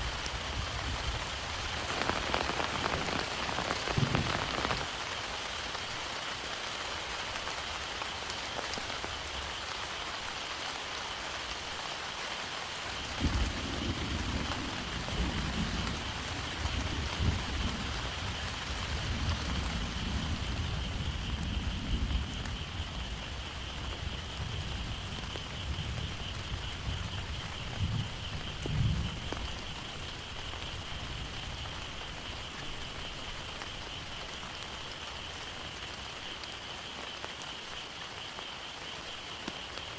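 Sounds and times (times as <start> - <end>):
low roll of thunder: 0.0 - 4.9, 13.0 - 32.8
heavy rain falling: 0.0 - 39.9.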